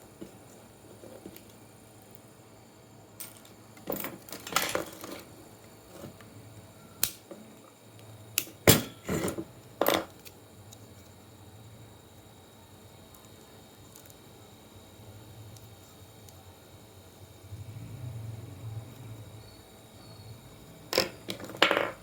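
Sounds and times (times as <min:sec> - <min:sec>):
tools scraping: 0:03.3 - 0:05.3, 0:08.8 - 0:10.1.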